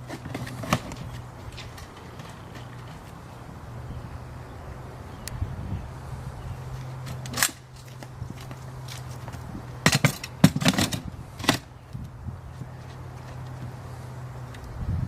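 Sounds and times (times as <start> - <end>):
sharp knocks and clatters: 7.0 - 11.7.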